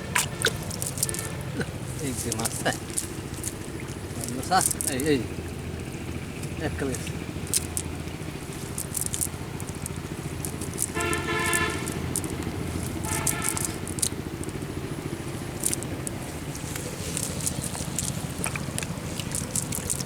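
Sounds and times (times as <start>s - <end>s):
motor running steadily: 0.0s - 20.0s
horn toots: 10.8s - 14.0s.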